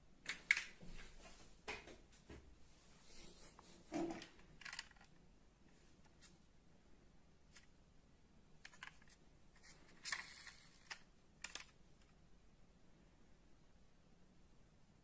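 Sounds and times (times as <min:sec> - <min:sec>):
metal model cars clicking: 0:04.1 - 0:05.1, 0:08.6 - 0:12.1.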